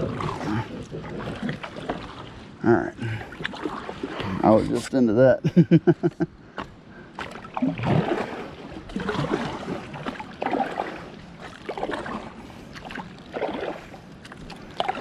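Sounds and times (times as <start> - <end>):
paddle strokes splashing in water: 0.0 - 4.9, 6.5 - 15.0.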